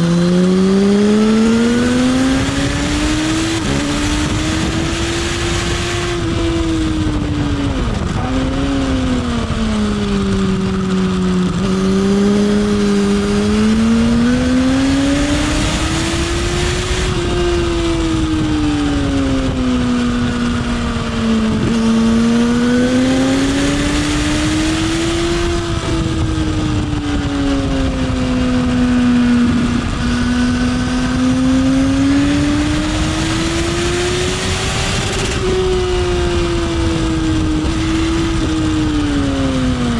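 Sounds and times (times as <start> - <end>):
motorcycle engine revving: 0.0 - 39.9
wind rushing: 0.8 - 39.9.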